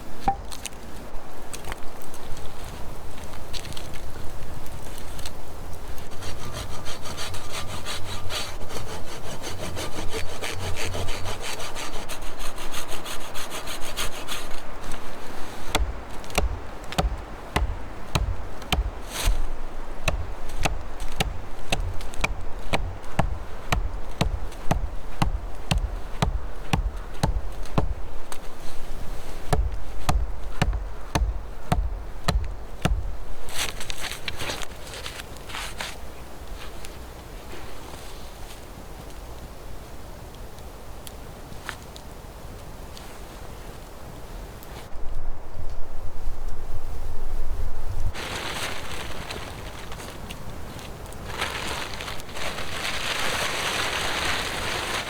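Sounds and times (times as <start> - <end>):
hand saw cutting wood: 5.9 - 28.0.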